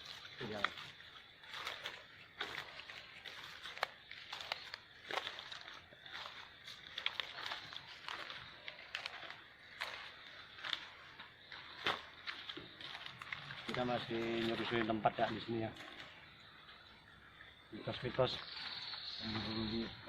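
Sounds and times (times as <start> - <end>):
twigs snapping: 0.0 - 14.8
footsteps crunching through undergrowth: 0.0 - 17.1.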